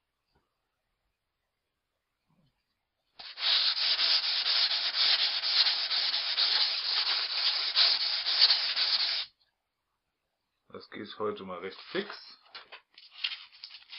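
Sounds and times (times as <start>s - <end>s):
axe edge scratching on sandpaper: 3.2s - 9.3s.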